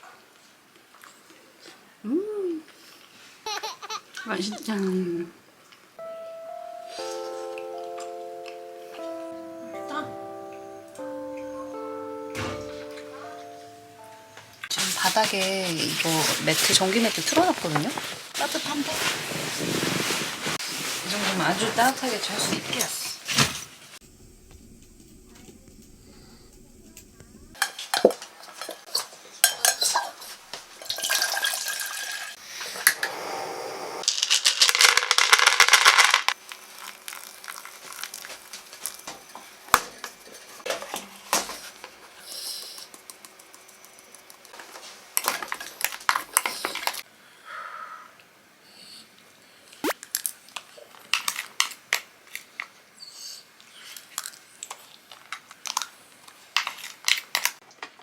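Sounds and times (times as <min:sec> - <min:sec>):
dense rustling noise: 0:14.7 - 0:27.6
dishes and utensils clinking: 0:27.6 - 0:32.2.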